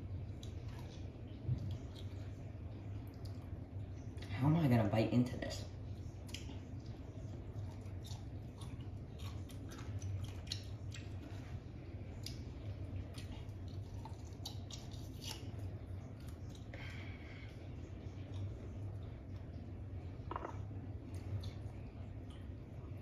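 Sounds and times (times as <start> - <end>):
steady low hum: 0.0 - 23.0
person chewing lime: 6.2 - 11.5, 12.1 - 17.0, 20.3 - 22.5.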